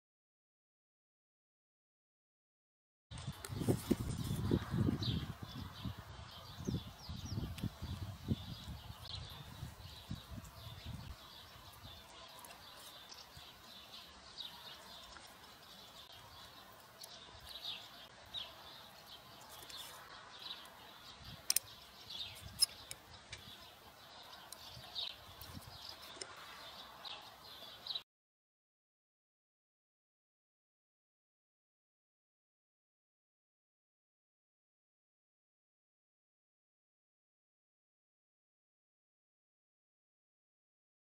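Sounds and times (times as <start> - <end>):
small birds chirping: 3.1 - 28.0
sharp clicks: 21.4 - 21.8.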